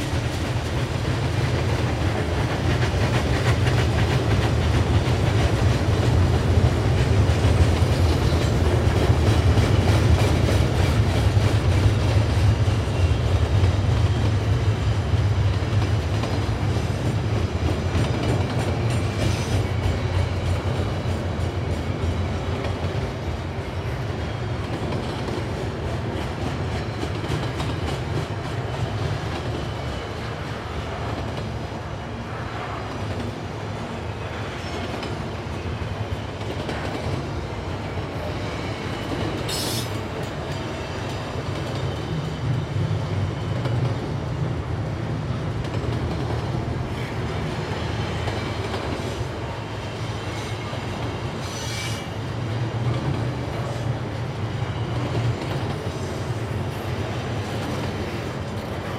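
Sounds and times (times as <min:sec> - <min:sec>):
freight train rumbling past: 0:00.0 - 0:58.9.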